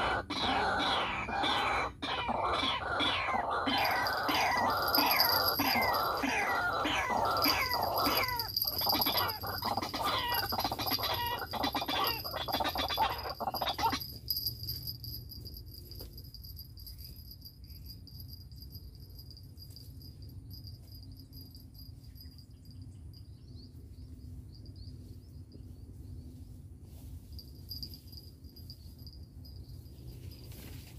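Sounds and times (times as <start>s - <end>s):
waterhen calling harsh notes: 0.0s - 14.0s
insects trilling: 0.0s - 14.4s.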